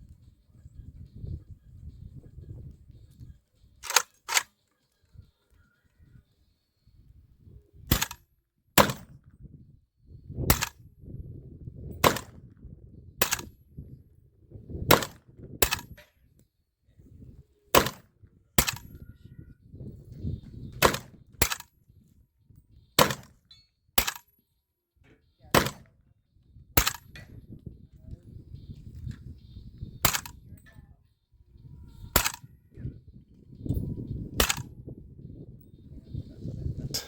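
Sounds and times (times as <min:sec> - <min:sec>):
rifle shots: 0:03.8 - 0:04.5, 0:07.9 - 0:08.2, 0:08.8 - 0:09.2, 0:10.5 - 0:10.8, 0:12.0 - 0:12.4, 0:13.2 - 0:13.5, 0:14.9 - 0:15.9, 0:17.8 - 0:18.0, 0:18.6 - 0:18.9, 0:20.8 - 0:21.6, 0:23.0 - 0:23.3, 0:24.0 - 0:24.2, 0:25.5 - 0:25.9, 0:26.8 - 0:27.1, 0:30.0 - 0:30.4, 0:32.2 - 0:32.4, 0:34.4 - 0:34.7.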